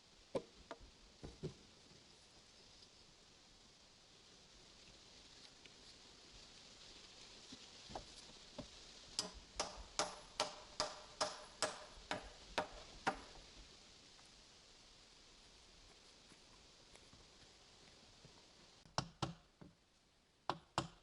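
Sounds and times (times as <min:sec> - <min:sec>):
hammer striking metal: 0:09.2 - 0:13.3.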